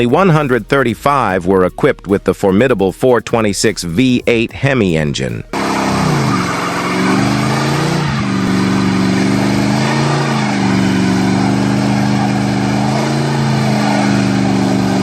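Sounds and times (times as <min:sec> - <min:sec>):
car engine running at low revs: 0:05.5 - 0:15.0.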